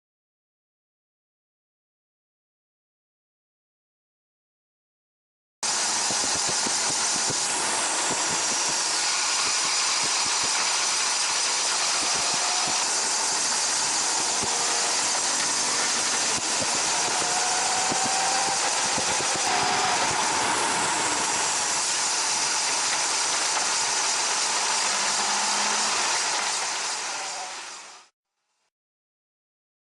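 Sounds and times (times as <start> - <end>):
motorcycle engine running: 5.7 - 27.5
motorcycle brake scraping hiss: 5.9 - 28.1.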